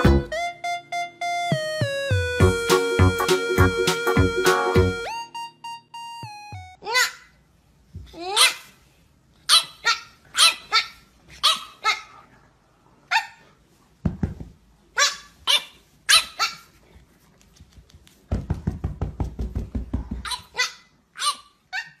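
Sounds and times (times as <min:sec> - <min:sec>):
puppy barking in high yaps: 0:08.2 - 0:08.7, 0:09.5 - 0:12.1, 0:15.0 - 0:16.7, 0:20.2 - 0:22.0.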